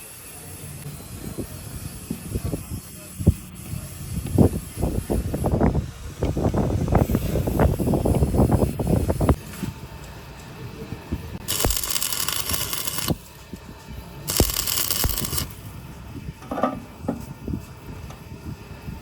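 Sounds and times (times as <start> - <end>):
hissing bursts: 0.0 - 9.4, 11.4 - 13.3, 14.3 - 15.7.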